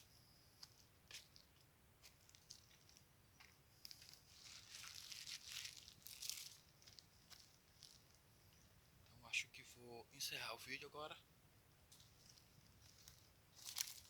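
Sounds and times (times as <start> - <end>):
soft rustling: 0.6 - 8.8, 11.9 - 14.0.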